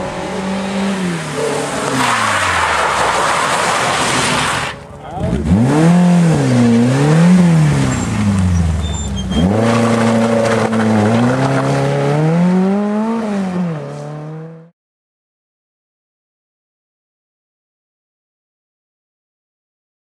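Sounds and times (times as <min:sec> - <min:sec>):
rally car engine revving: 0:00.0 - 0:14.7.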